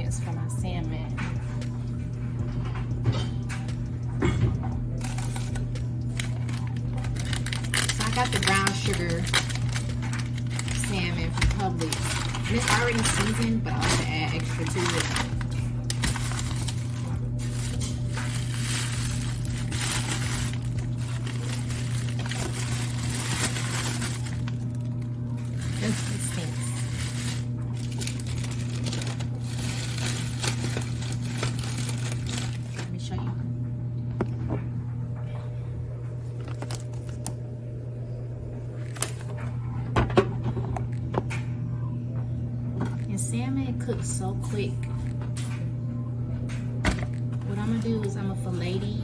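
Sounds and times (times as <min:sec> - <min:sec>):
steady low hum: 0:00.0 - 0:49.0
glass and containers clinking: 0:01.2 - 0:33.0.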